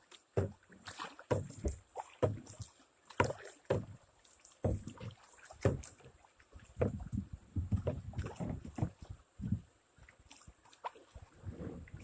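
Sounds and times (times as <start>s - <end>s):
paddle splashing water: 0.0s - 12.0s
paddle knocking on kayak hull: 0.3s - 9.6s.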